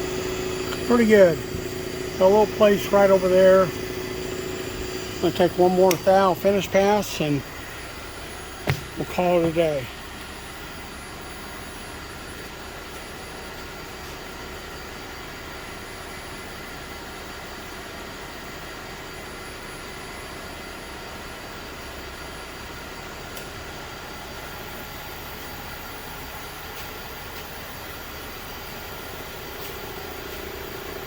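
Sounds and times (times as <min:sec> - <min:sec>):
machine tool humming: 0:00.0 - 0:10.8.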